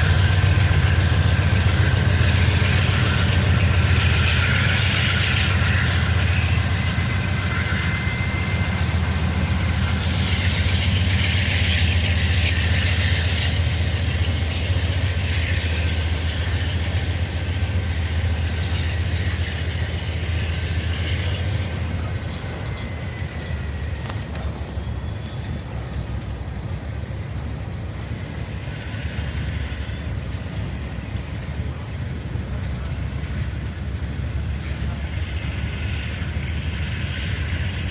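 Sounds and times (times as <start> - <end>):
locomotive engine droning: 0.0 - 37.9
train cars rolling on rails: 0.0 - 37.9.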